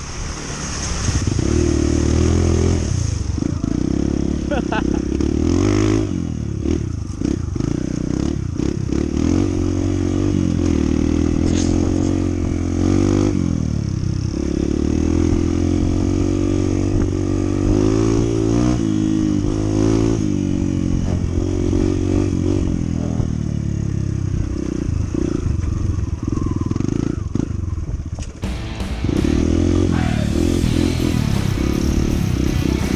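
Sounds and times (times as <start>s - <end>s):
motorcycle engine running: 1.2s - 32.9s.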